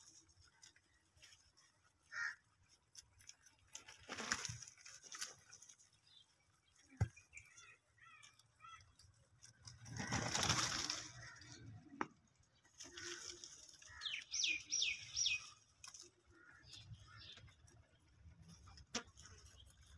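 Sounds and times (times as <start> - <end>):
birds chirping: 5.6 - 19.9
loud rustling flurry: 9.6 - 11.4.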